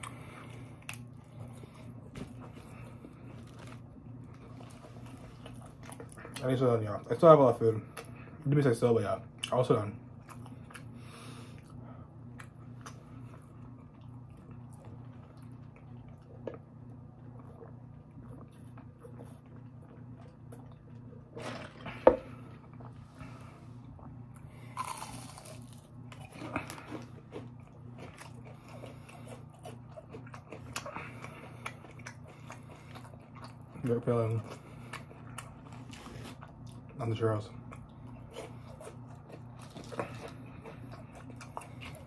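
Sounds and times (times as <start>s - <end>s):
chewing fried food: 0.0s - 42.0s
steady low hum: 0.0s - 42.0s.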